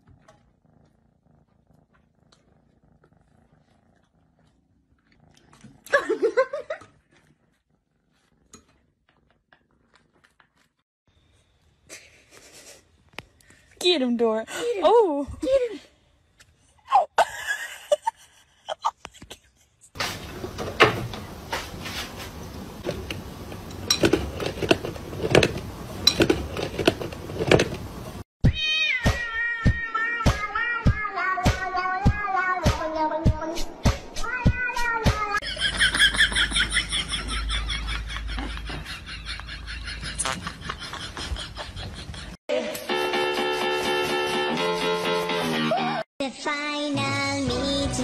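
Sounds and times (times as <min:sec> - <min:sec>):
cat meowing: 0:28.4 - 0:32.5.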